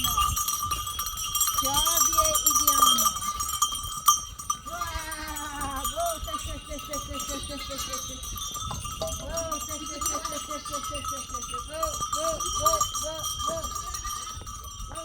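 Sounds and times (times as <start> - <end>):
animal bells ringing: 0.0 - 15.0
sheep and goats bleating: 4.7 - 6.4.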